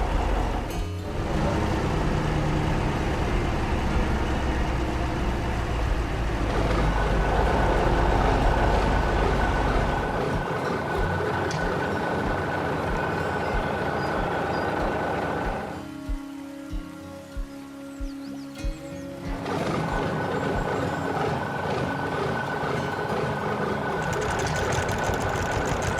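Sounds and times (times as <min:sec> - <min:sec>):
tractor engine rumbling: 0:00.0 - 0:15.7, 0:19.2 - 0:25.9
steady high whine: 0:00.0 - 0:25.9.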